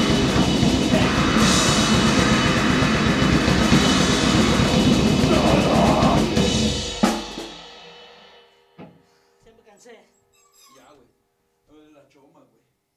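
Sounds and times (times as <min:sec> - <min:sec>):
grindcore band playing: 0:00.0 - 0:08.4.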